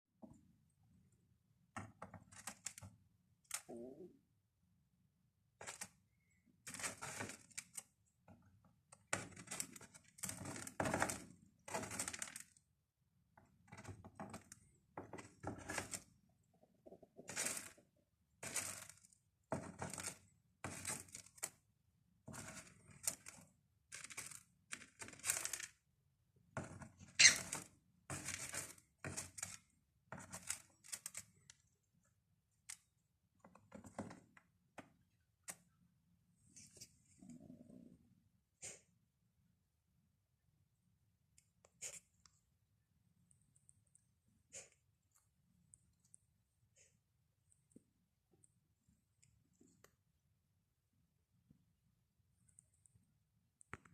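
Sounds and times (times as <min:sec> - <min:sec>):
birdseed rattling and clicking: 0:09.2 - 0:12.6, 0:18.4 - 0:19.1, 0:22.3 - 0:25.8.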